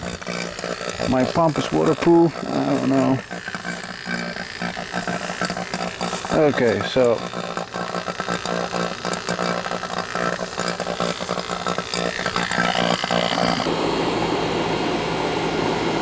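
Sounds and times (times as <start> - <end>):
air conditioner motor hum: 0.0 - 16.0.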